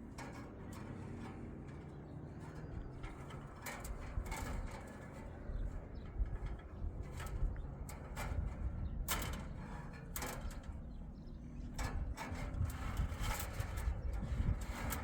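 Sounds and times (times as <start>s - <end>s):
scrapes and knocks: 11.6s - 15.0s.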